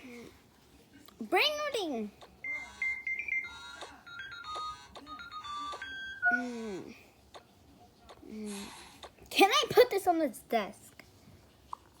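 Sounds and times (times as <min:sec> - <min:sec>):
electronic alarm ringtone melody: 0:02.4 - 0:06.8.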